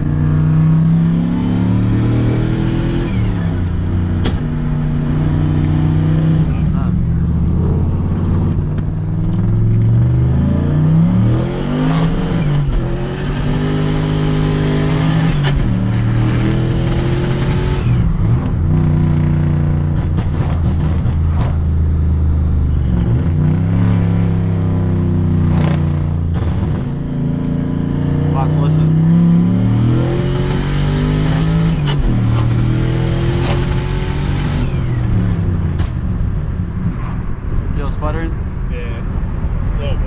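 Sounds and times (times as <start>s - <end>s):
car engine accelerating through gears: 0.0s - 37.2s.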